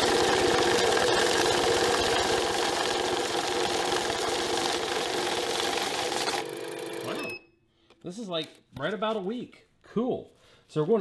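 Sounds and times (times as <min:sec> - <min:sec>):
bill counter motor whirring: 0:00.0 - 0:07.4.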